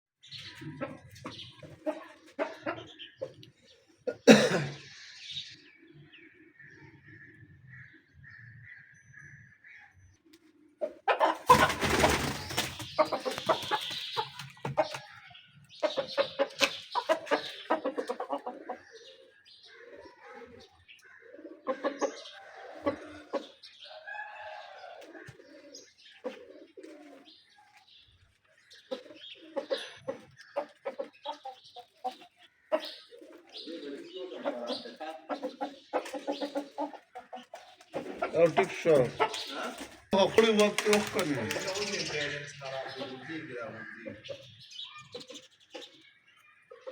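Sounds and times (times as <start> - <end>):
roosters clucking and calling: 0.2 - 46.9
wings flapping and scuffling: 11.2 - 15.2, 25.0 - 31.1, 36.0 - 42.1.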